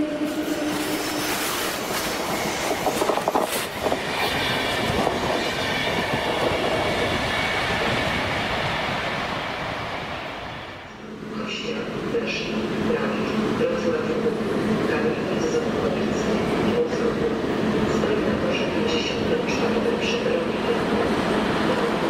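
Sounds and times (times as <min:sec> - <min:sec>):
train wheels clacking on rails: 0:00.6 - 0:07.0.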